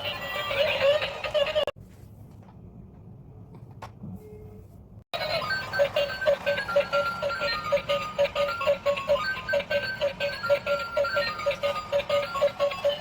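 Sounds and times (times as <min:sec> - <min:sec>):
bright bouncy music: 0:05.2 - 0:13.0.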